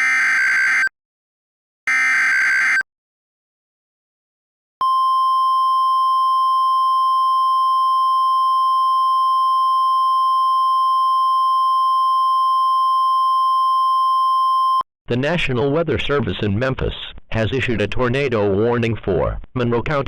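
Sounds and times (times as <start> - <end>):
steady high alarm tone: 0.0 - 0.9, 1.9 - 2.8.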